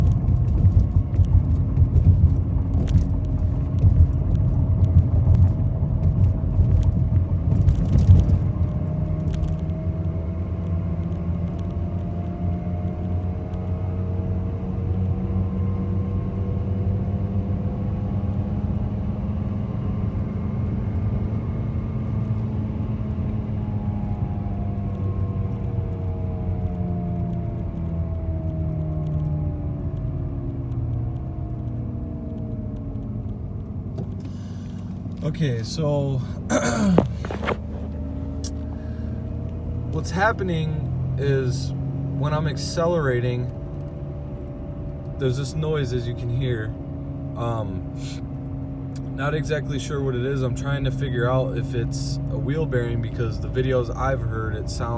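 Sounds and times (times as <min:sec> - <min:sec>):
car road rumble: 0:00.0 - 0:54.9
front-end hum: 0:33.9 - 0:43.0.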